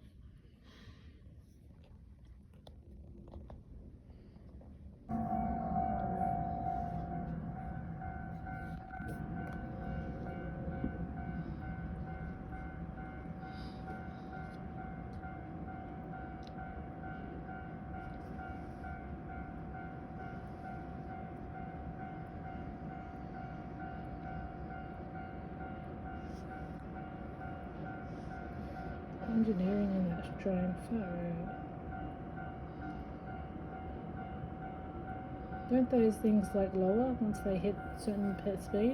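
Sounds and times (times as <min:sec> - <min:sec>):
train low rumble: 0:00.0 - 0:38.9
pulsing higher tone: 0:05.1 - 0:13.4
steady tone: 0:05.1 - 0:15.6.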